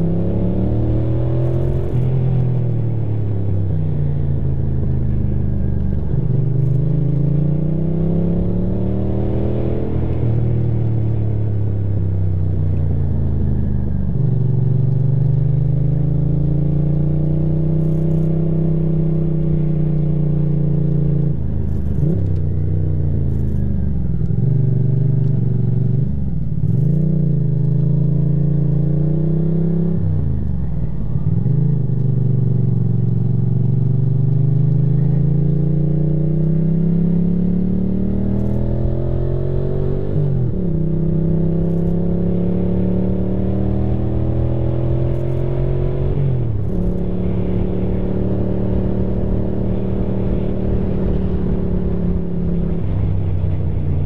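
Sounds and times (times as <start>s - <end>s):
motorcycle engine revving: 31.1s - 54.0s.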